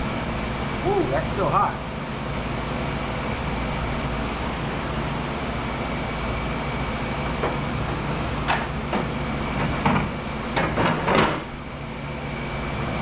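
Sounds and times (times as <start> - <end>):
shop machinery hum: 0.0 - 13.0
metal clanks and knocks: 7.4 - 11.5.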